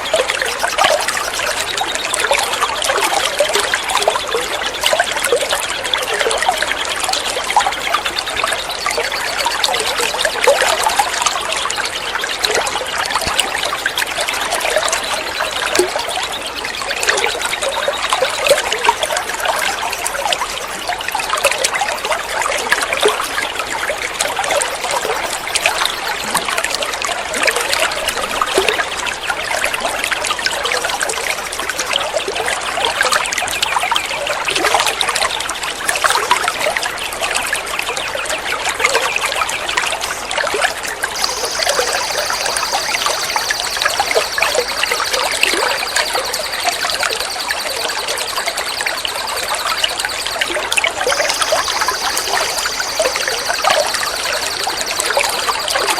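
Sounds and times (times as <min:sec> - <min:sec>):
high-pitched tone: 0:41.2 - 0:55.9.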